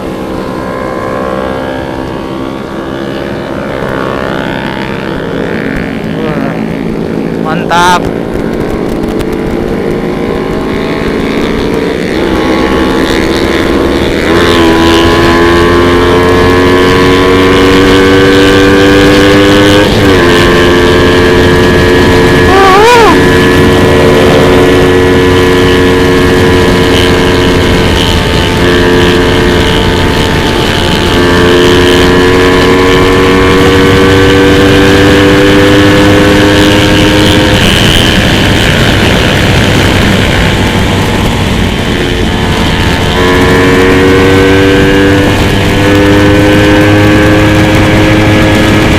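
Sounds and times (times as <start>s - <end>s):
motorcycle engine accelerating: 0.0s - 48.9s
wind rush: 0.0s - 48.9s.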